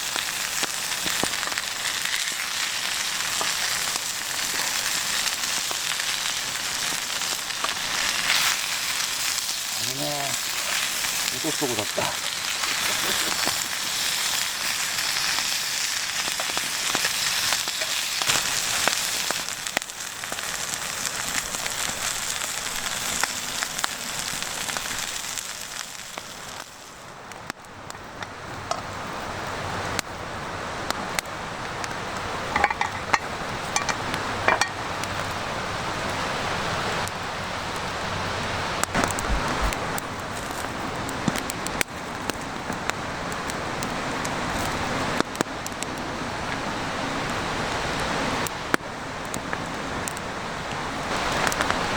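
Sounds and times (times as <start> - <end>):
food sizzling in a pan: 0.0 - 27.1
campfire crackling: 0.0 - 51.9.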